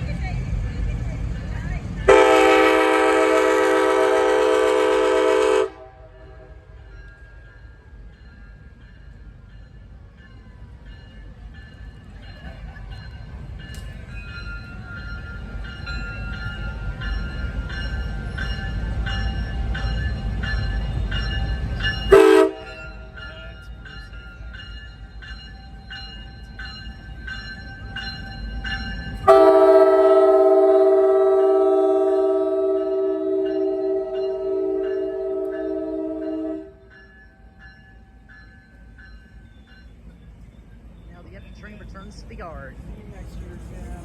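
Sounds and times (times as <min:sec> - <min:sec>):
train rumbling: 0:00.0 - 0:44.0
locomotive bell ringing: 0:01.2 - 0:44.0
train horn: 0:02.1 - 0:06.7, 0:22.1 - 0:22.9, 0:29.2 - 0:36.9.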